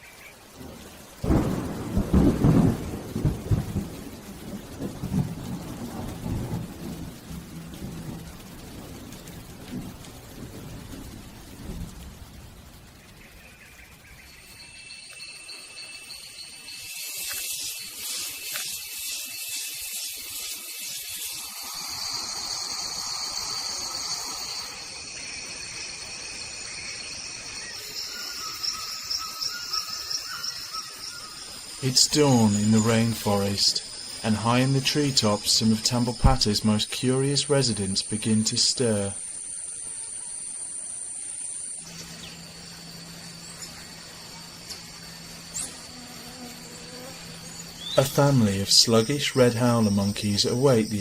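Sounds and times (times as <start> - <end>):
insects buzzing and trilling: 0.0 - 51.0
rain: 0.0 - 51.0
thunder rumbling: 0.4 - 13.3.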